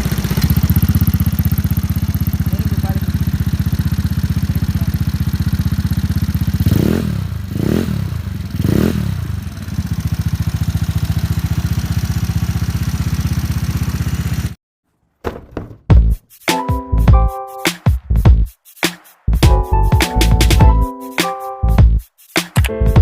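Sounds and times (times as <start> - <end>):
scooter engine idling: 0.0 - 14.6
scooter engine revving: 0.0 - 14.6.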